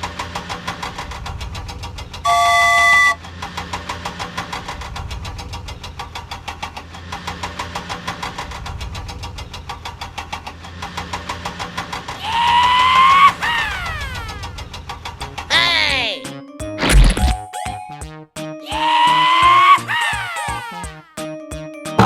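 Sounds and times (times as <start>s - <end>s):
cartoon engine knocking: 1.0s - 3.3s
loud horn honk: 2.3s - 3.2s.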